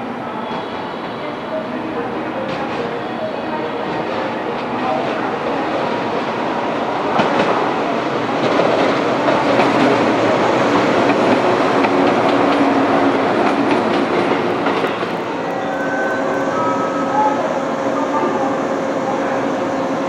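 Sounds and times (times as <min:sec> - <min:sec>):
train wheels running on rails: 0:00.0 - 0:20.0.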